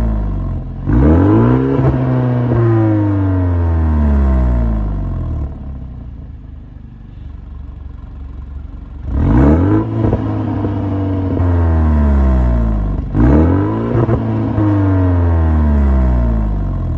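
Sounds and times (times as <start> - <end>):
car engine idling and revving: 0.0 - 16.9.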